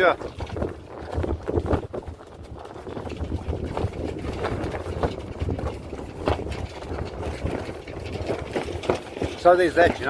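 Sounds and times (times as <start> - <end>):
knocks and flaps: 0.0 - 10.0
wind gusting across microphone: 0.0 - 10.0.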